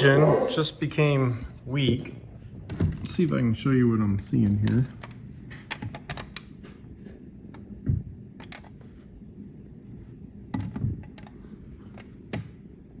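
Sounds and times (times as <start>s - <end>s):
low background hum: 0.0s - 13.0s
handling clicks and knocks: 4.5s - 6.8s.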